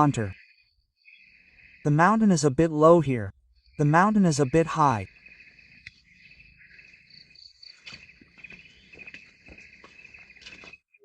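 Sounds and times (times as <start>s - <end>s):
insects chirring: 0.0s - 10.9s
faint clicks: 5.8s - 6.0s.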